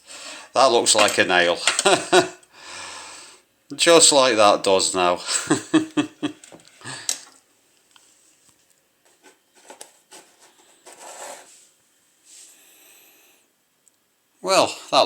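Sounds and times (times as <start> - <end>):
rubbing and rustling of objects: 8.0 - 12.6.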